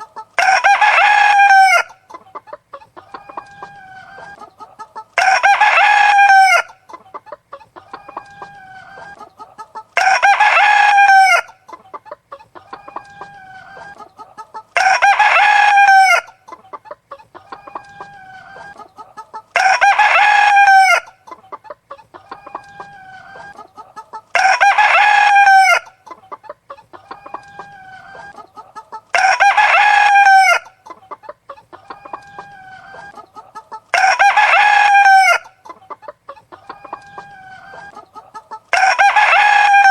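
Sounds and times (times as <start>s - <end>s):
hens clucking: 0.0s - 39.9s
rooster crowing: 0.4s - 2.0s, 5.2s - 6.8s, 10.0s - 11.5s, 14.8s - 16.3s, 19.6s - 21.1s, 24.4s - 25.9s, 29.1s - 30.7s, 31.8s - 35.5s, 38.7s - 39.9s.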